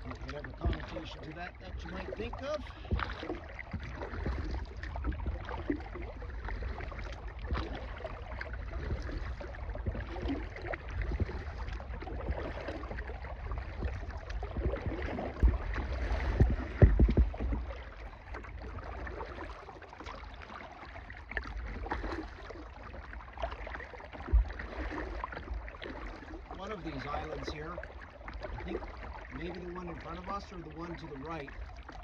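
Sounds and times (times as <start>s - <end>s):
low rumble: 0.0s - 19.7s
kayak paddle splashing: 0.0s - 32.0s
water gurgling against hull: 0.0s - 32.0s.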